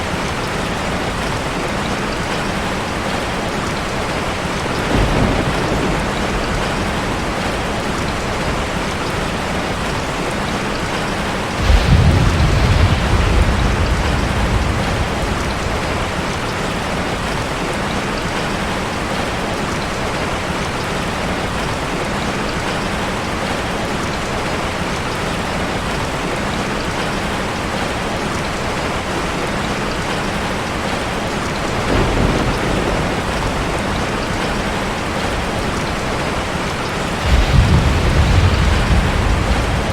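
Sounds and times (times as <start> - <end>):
low rumble: 11.6 - 17.2, 37.2 - 39.9.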